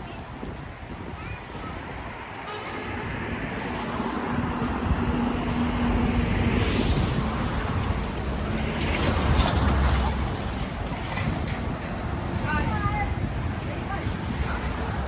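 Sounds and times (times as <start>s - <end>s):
traffic engine hum: 0.0s - 15.0s
heavy vehicle low rumble: 3.1s - 15.0s.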